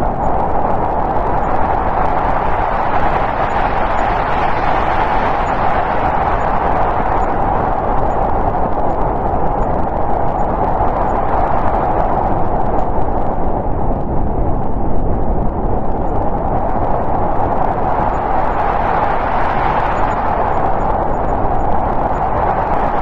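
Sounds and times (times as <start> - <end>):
snowstorm wind howling: 0.0 - 23.0.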